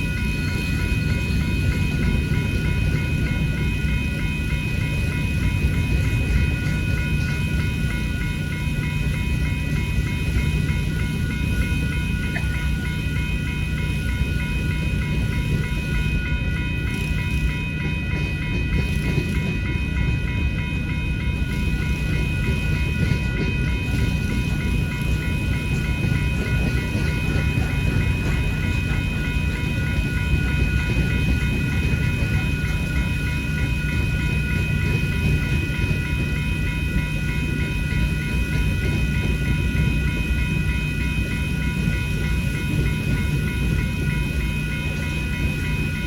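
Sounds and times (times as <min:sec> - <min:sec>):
crossing bell ringing: 0:00.0 - 0:46.0
freight train rumbling: 0:00.0 - 0:46.0.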